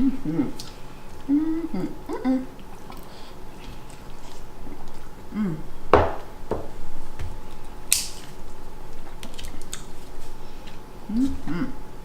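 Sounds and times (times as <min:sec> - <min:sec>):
crab shells cracking: 0:07.6 - 0:10.0.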